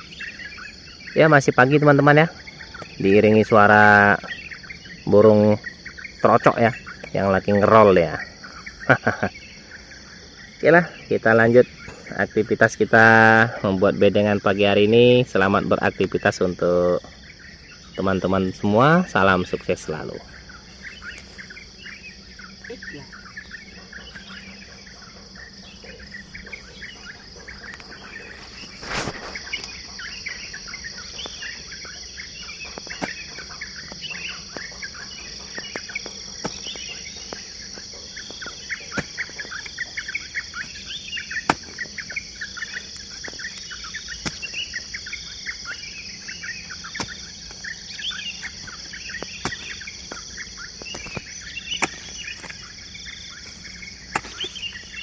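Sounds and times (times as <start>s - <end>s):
birds chirping and singing: 0.0s - 55.0s
high insect buzz: 0.0s - 55.0s.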